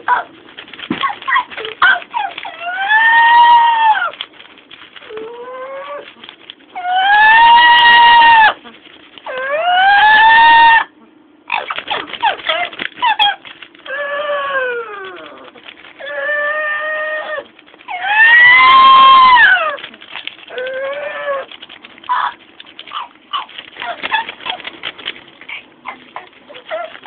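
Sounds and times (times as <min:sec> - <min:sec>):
parrot choppy squawks: 0:00.0 - 0:04.2, 0:11.5 - 0:19.8, 0:22.1 - 0:27.0
parrot drawn-out cries: 0:09.3 - 0:10.9, 0:16.0 - 0:19.8.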